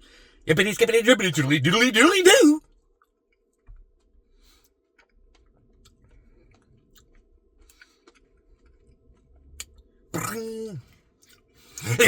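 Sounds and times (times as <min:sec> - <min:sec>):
faint close-up chewing: 0:03.0 - 0:09.9, 0:10.8 - 0:11.8.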